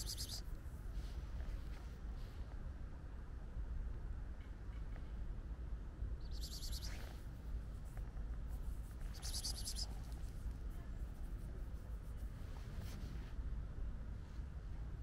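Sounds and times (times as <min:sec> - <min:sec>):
small bird trilling: 0:00.0 - 0:00.4, 0:06.3 - 0:07.1, 0:09.1 - 0:10.0
steady low rumble: 0:00.0 - 0:15.0.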